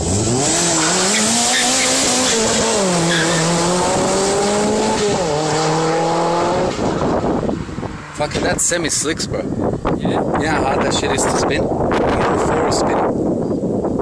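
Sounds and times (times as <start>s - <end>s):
car engine revving at full throttle: 0.0s - 10.4s.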